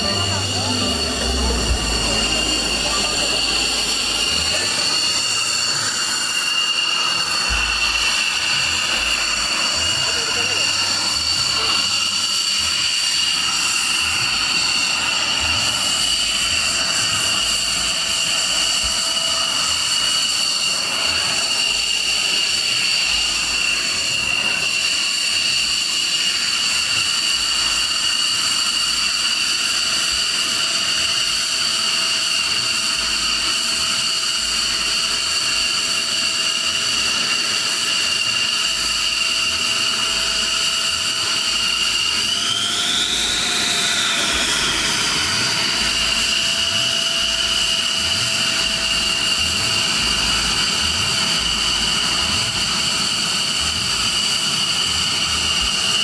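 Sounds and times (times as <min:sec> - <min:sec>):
jet turbine whine: 0:00.0 - 0:56.0.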